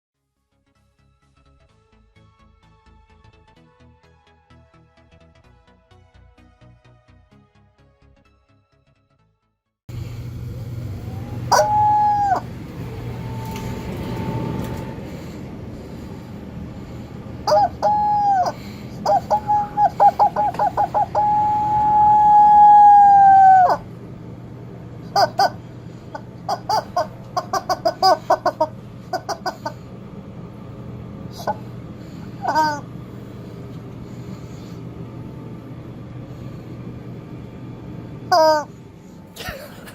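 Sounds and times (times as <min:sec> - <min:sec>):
low steady hum: 0:09.9 - 0:39.9
rubber chicken squawk: 0:11.5 - 0:12.5, 0:17.5 - 0:23.8, 0:25.1 - 0:25.6, 0:26.5 - 0:29.8, 0:32.4 - 0:32.8, 0:38.3 - 0:38.7.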